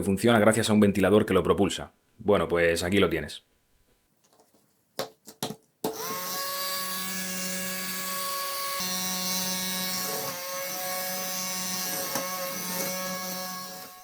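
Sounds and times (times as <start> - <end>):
small electric motor whirring: 5.9 - 14.0.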